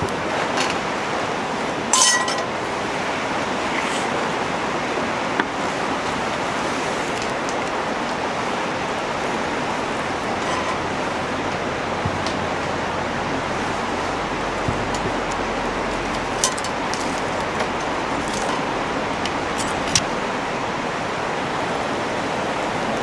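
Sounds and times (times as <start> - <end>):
steady rushing hiss: 0.0 - 23.0
cookware clinking: 2.0 - 2.5.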